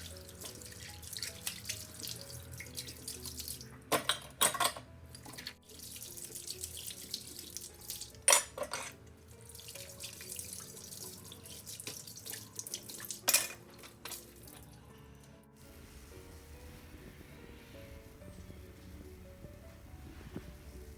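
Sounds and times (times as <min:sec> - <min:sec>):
water running from tap into sink: 0:00.0 - 0:03.7, 0:05.3 - 0:08.5, 0:09.4 - 0:14.6.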